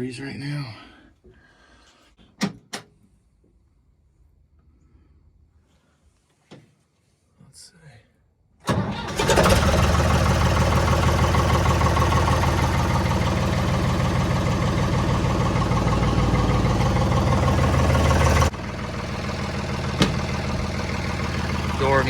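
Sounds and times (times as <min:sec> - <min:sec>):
diesel engine idling: 0:08.7 - 0:22.0.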